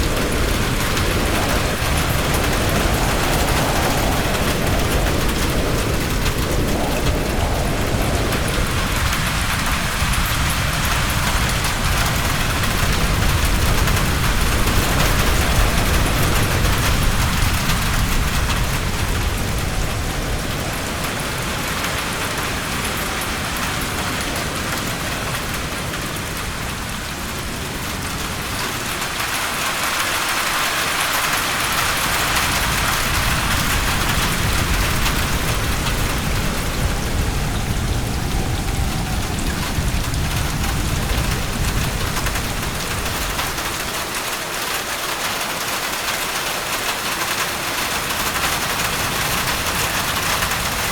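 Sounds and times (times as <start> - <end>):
low rumble: 0.0 - 21.7, 32.0 - 44.1
heavy rain hissing: 0.0 - 50.9.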